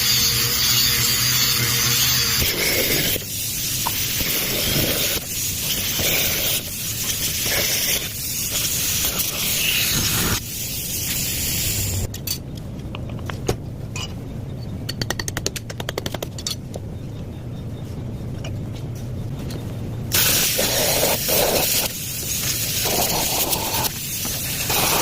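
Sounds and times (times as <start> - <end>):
vacuum pump air hiss: 20.1 - 25.0.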